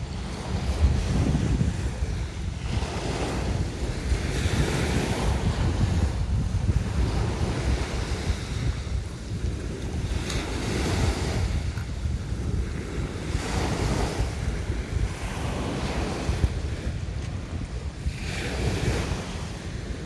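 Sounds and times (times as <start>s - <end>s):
sea waves washing on shore: 0.0s - 20.0s
wind buffeting microphone: 0.0s - 20.0s.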